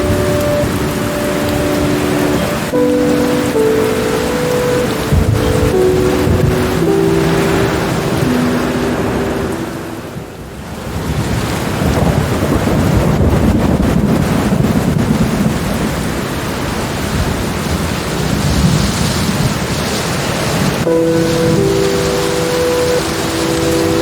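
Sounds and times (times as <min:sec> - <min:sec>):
soft sustained music notes: 0:00.0 - 0:10.5, 0:20.8 - 0:24.0
low rolling thunder: 0:00.0 - 0:20.0
heavy rain: 0:00.0 - 0:24.0.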